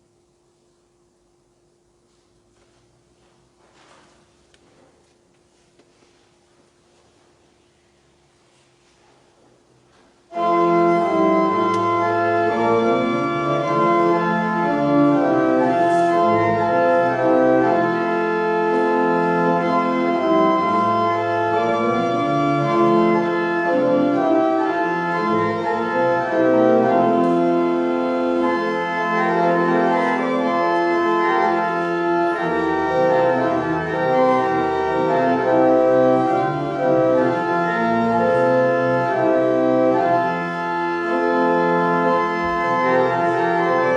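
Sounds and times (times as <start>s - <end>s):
church organ playing chords: 9.9s - 43.9s.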